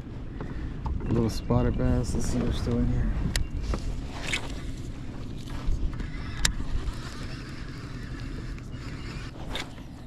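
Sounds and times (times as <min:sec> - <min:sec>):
sharp clicks: 0:06.0 - 0:09.7.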